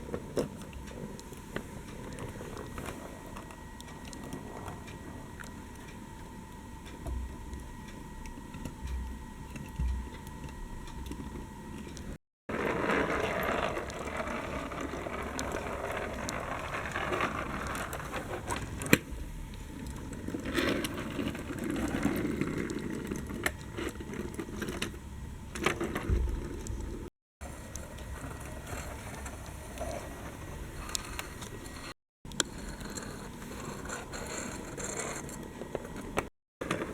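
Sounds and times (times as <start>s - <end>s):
thin steady whine: 0.0s - 36.9s
toy electric motors whirring: 12.5s - 19.0s, 27.4s - 36.0s.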